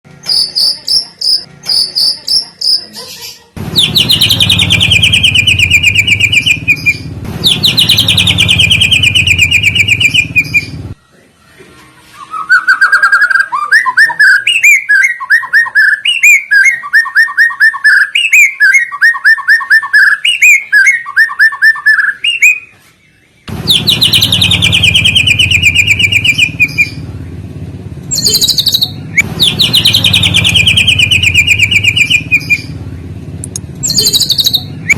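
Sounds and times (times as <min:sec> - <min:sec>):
rhythmic chirped phrases: 0:00.1 - 0:10.9, 0:23.5 - 0:27.0, 0:28.1 - 0:32.7, 0:33.4 - 0:34.9
songbird trills: 0:00.2 - 0:02.9, 0:03.8 - 0:10.8, 0:12.2 - 0:27.0, 0:28.1 - 0:33.1, 0:33.8 - 0:34.9.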